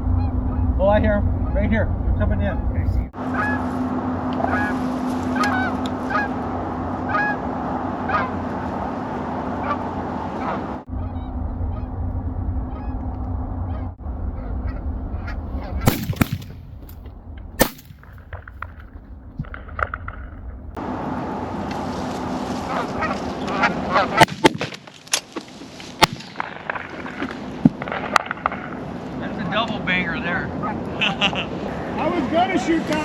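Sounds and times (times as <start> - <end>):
geese honking: 0.0 - 8.7, 9.5 - 16.3, 22.6 - 24.3
shotgun blasts: 14.7 - 20.8, 24.1 - 24.9, 26.0 - 28.5.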